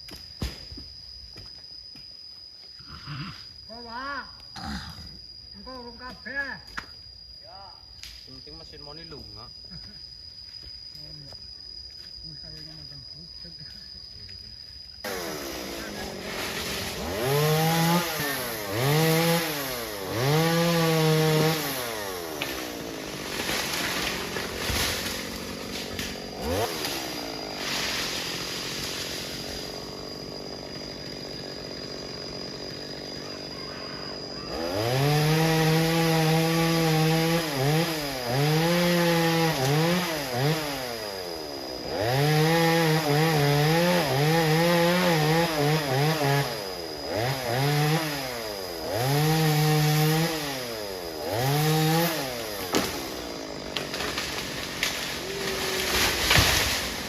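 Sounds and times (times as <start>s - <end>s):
chainsaw cutting wood: 15.0s - 33.5s, 34.1s - 57.0s
chainsaw idling and revving: 15.0s - 57.0s.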